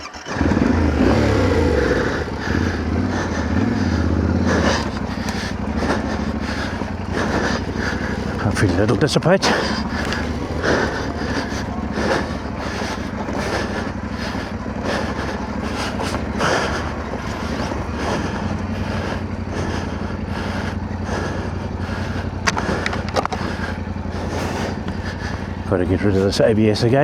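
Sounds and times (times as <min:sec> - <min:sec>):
motorcycle engine running: 0:00.0 - 0:27.0
sharp clicks: 0:22.4 - 0:23.8.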